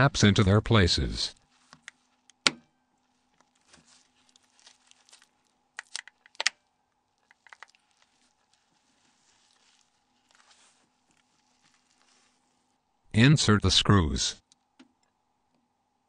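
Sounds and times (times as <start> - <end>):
handling rustle: 1.4 - 2.3, 3.0 - 12.8
plastic phone cover snapping: 5.8 - 6.6.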